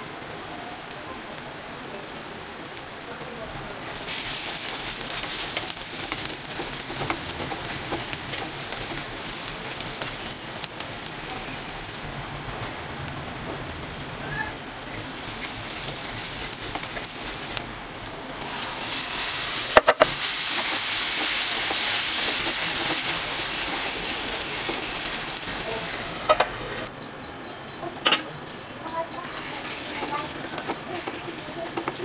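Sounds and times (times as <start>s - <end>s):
onions sizzling in oil: 0.0s - 26.9s
wooden spatula stirring: 4.0s - 11.7s, 14.8s - 26.8s.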